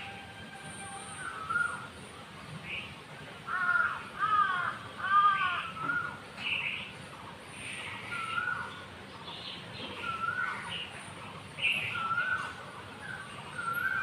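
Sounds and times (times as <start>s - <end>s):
small birds chirping: 1.0s - 14.0s
crow cawing: 3.5s - 6.1s.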